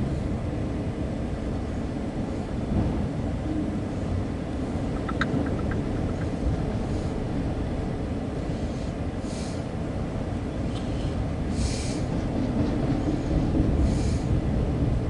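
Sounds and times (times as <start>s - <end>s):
train wheels rumbling on rails: 0.0s - 15.0s
faint ticks: 5.0s - 6.4s.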